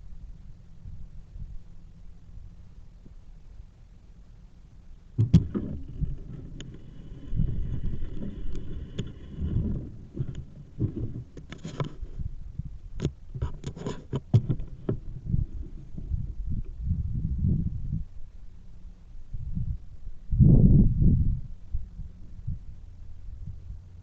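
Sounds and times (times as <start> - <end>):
sharp clicks and knocks: 5.2 - 12.3, 13.0 - 15.4
bicycle rumbling over rough path: 5.2 - 17.2.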